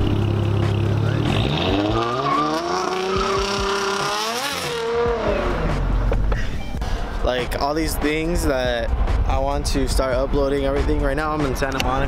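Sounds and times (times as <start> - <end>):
car engine revving: 0.0 - 6.4.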